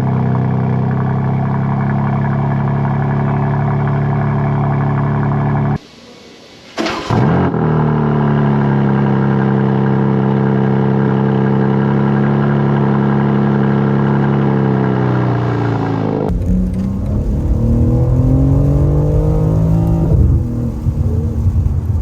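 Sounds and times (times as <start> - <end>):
car engine starting and idling: 0.0 - 5.8, 6.6 - 22.0.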